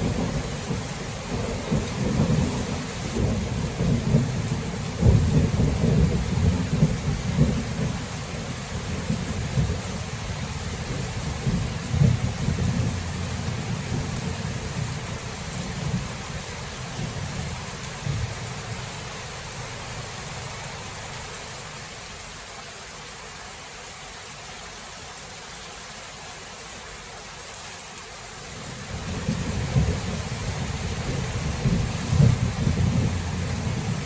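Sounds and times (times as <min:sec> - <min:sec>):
rolling thunder: 0:00.0 - 0:16.2, 0:28.9 - 0:34.0
steady rain: 0:00.0 - 0:34.0.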